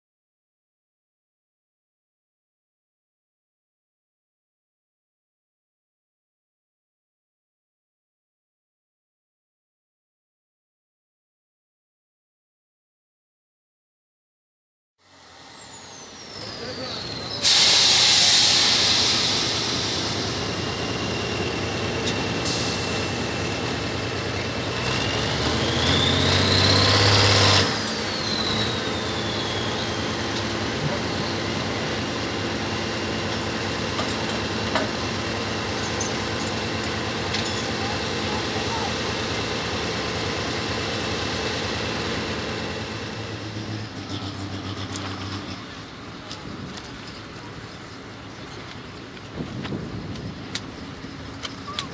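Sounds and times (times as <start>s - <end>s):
pulling tractor engine: 15.2s - 51.9s.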